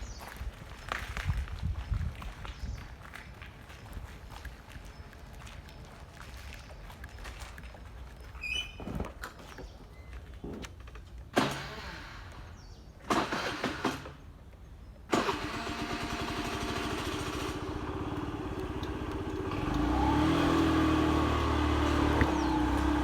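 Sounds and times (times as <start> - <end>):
motorcycle engine starting and idling: 11.3 - 14.3, 15.1 - 23.0.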